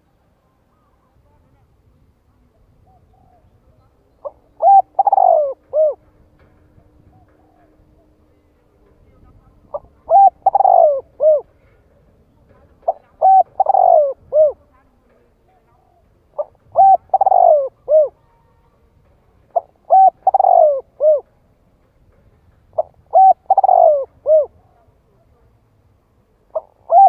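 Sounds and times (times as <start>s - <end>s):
dove cooing: 4.2s - 8.1s, 9.6s - 12.0s, 12.6s - 14.7s, 15.8s - 18.6s, 19.5s - 21.4s, 22.7s - 24.9s, 26.5s - 27.0s.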